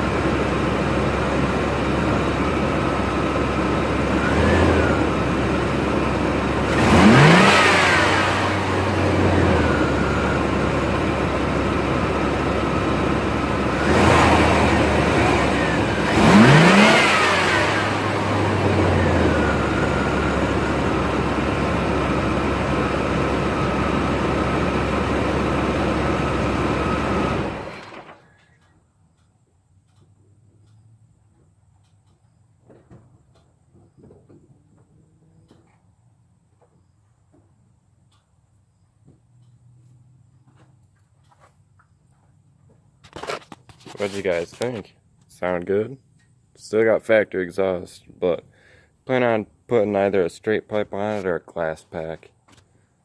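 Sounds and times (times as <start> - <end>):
truck engine revving and idling: 0.0 - 28.2.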